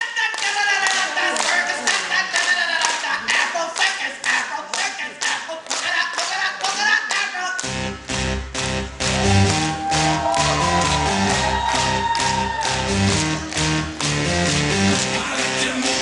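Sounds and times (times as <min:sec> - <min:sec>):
audience clapping in rhythm: 0:00.0 - 0:16.0
music with bass line: 0:07.6 - 0:16.0.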